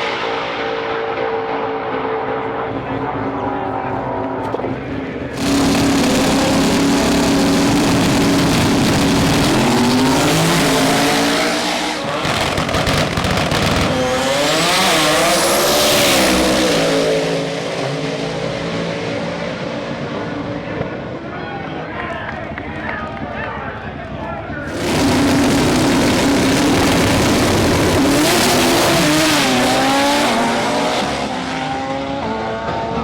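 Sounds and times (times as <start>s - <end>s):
car engine revving hard: 5.3s - 19.7s, 24.7s - 33.0s.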